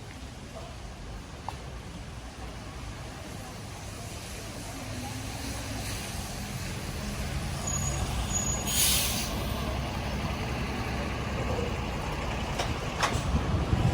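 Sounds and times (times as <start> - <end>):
heavy vehicle engine rumbling: 2.1 - 13.9
loud hiss: 7.6 - 9.8.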